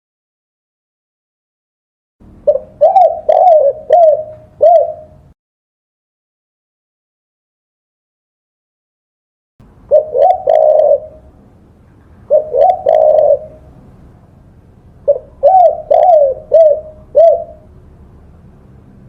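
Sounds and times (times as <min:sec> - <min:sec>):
dove cooing: 0:02.4 - 0:05.3, 0:09.9 - 0:11.3, 0:12.2 - 0:13.8, 0:15.0 - 0:17.7.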